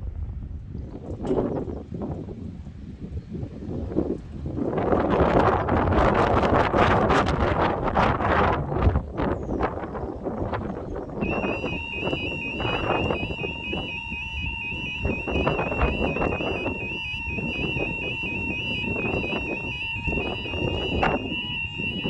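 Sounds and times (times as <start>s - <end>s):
wind rumble on microphone: 0.0s - 22.0s
steady low tone: 11.2s - 22.0s
warbling electronic alarm tone: 11.2s - 22.0s.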